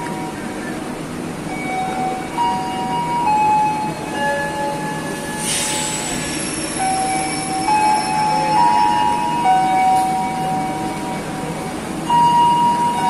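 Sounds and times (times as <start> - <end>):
train rumbling on rails: 0.0 - 13.0
short hiss: 5.4 - 6.4.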